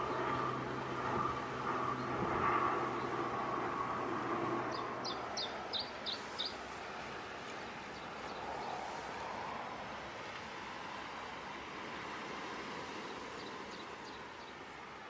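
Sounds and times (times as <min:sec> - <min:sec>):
droning engine hum: 0:00.0 - 0:15.0
outdoor background noise: 0:00.0 - 0:15.0
bird chirping: 0:04.7 - 0:06.6.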